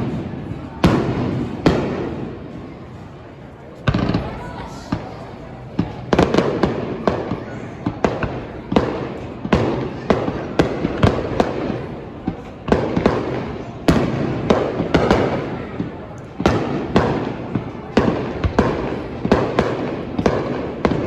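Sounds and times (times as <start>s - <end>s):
fireworks bangs with rumble: 0.0s - 3.2s, 3.8s - 21.0s.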